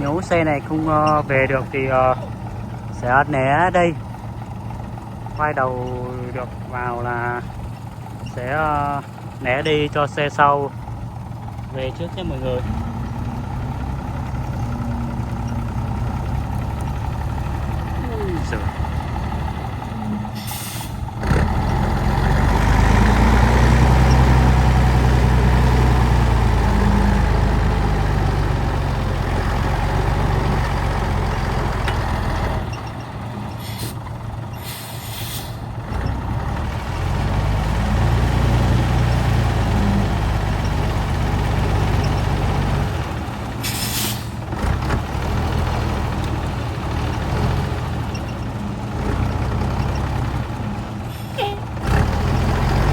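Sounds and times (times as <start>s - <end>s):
truck engine pulling hard: 0.0s - 52.9s
air brake hisses: 20.4s - 21.0s, 33.6s - 34.0s, 34.6s - 35.6s, 43.6s - 44.4s.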